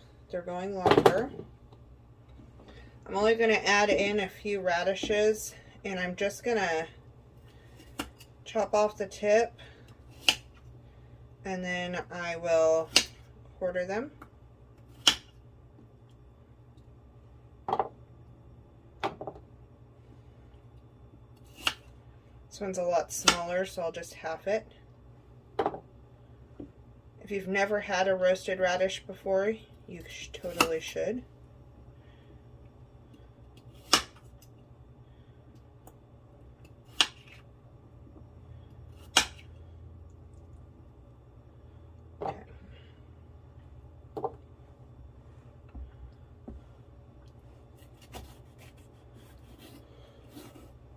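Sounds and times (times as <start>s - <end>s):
faint steady hum: 0.0s - 50.9s.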